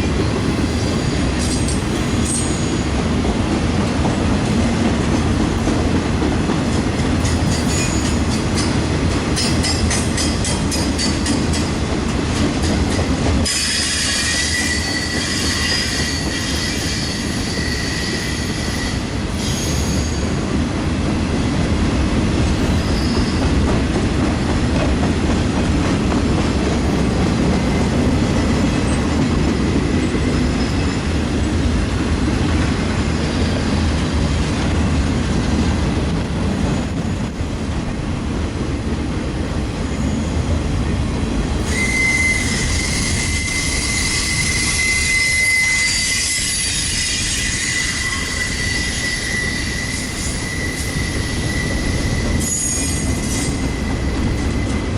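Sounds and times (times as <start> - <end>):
freight train cars rolling: 0.0 - 54.9
high wheel squeal: 13.5 - 20.4, 22.7 - 23.5, 41.6 - 54.9.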